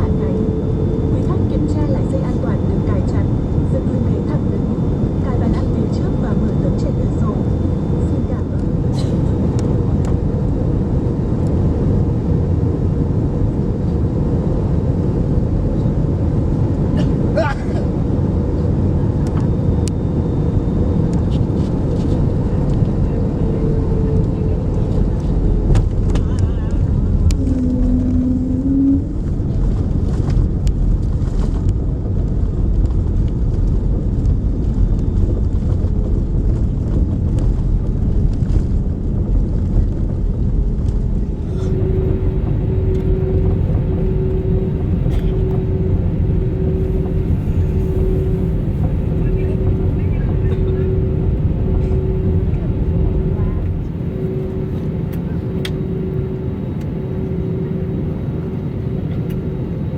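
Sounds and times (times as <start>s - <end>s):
airplane cabin rumble: 0.0s - 59.9s
short steady tone: 27.3s - 29.1s, 41.4s - 58.2s
faint repeating tone: 41.4s - 58.7s.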